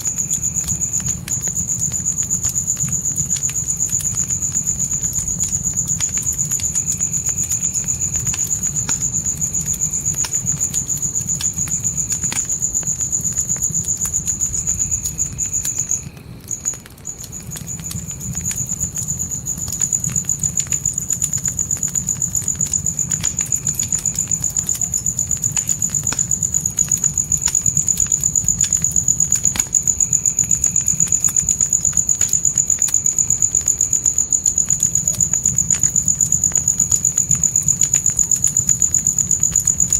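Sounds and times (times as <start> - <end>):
campfire crackling: 0.0 - 39.9
crickets trilling: 0.0 - 39.9.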